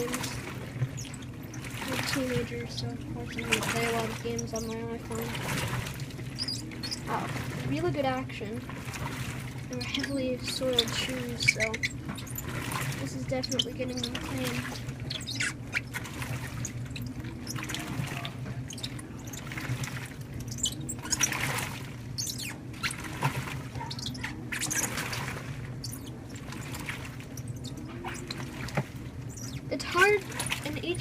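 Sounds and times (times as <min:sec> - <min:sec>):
washer motor hum: 0:00.0 - 0:31.0
water sloshing and churning: 0:00.0 - 0:31.0.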